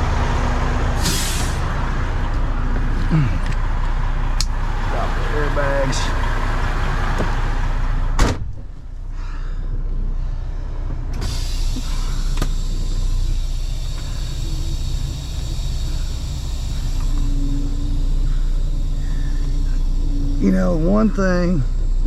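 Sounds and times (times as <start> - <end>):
diesel truck engine idling: 0.0 - 22.0
air hissing: 1.0 - 1.8, 4.4 - 8.0, 11.1 - 20.4.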